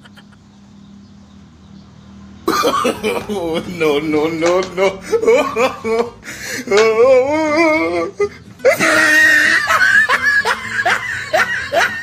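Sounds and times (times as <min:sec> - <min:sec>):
child laughing: 0:00.0 - 0:00.5, 0:02.5 - 0:03.8, 0:04.6 - 0:12.0
child crying: 0:06.7 - 0:09.8, 0:10.6 - 0:12.0.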